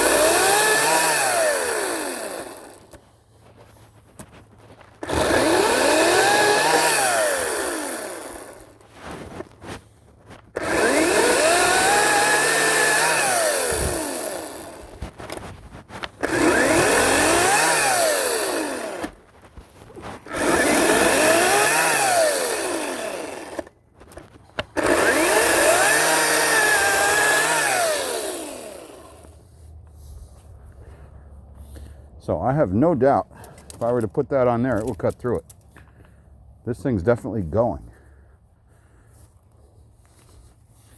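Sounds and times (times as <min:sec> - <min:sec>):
chain cutting into log: 0:00.0 - 0:03.0, 0:04.2 - 0:29.4
electric chainsaw motor whine: 0:00.0 - 0:03.0, 0:05.0 - 0:09.1, 0:10.5 - 0:15.4, 0:16.0 - 0:19.2, 0:20.0 - 0:23.8, 0:24.6 - 0:29.4.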